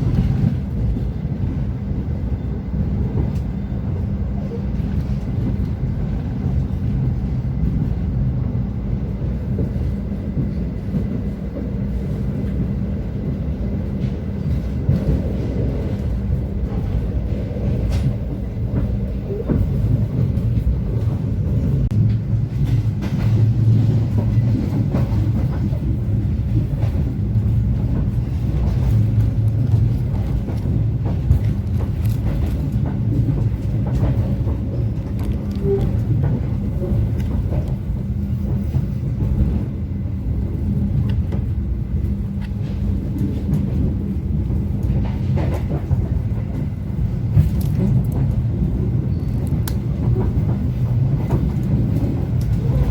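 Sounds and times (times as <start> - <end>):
train coach rumbling: 0.0 - 52.9
train wheels clicking on track: 0.0 - 52.9.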